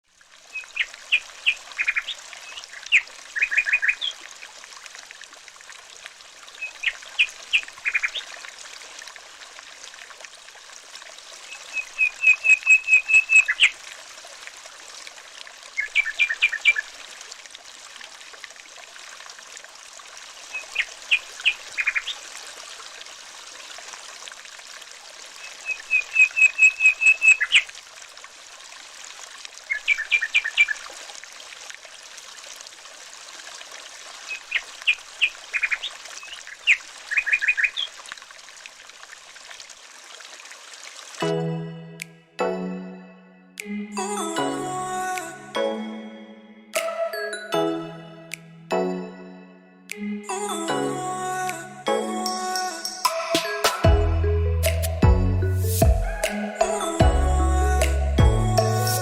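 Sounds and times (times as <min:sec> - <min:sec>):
running water trickling: 0:00.0 - 0:41.3.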